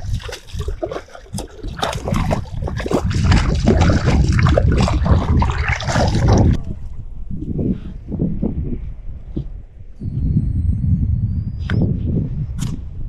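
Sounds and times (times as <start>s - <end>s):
water splashing and sloshing: 0.0s - 7.0s
wind buffeting microphone: 0.0s - 13.0s.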